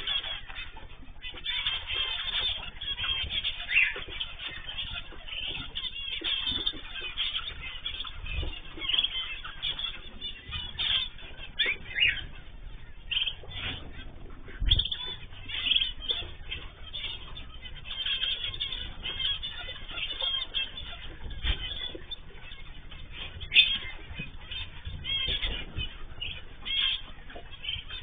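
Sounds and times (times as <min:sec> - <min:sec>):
cage birds chirping: 0:00.0 - 0:28.0.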